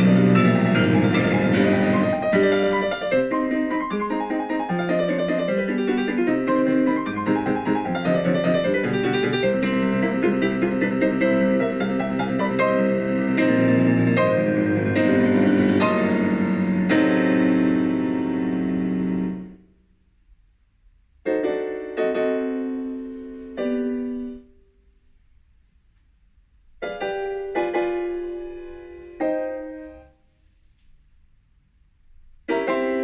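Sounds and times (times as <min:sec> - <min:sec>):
slow piano chords: 0:00.0 - 0:19.8, 0:21.3 - 0:24.8, 0:26.8 - 0:30.3, 0:32.4 - 0:33.0.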